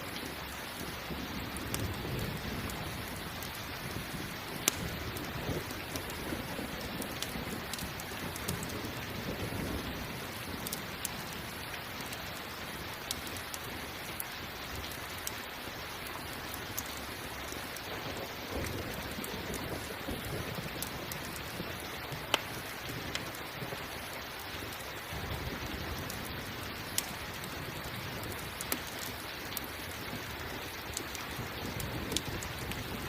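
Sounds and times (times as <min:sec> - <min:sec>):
campfire crackling and popping: 0:00.0 - 0:33.0
steady rain: 0:00.0 - 0:33.0
distant thunder rumbling: 0:01.0 - 0:11.6, 0:17.9 - 0:23.9.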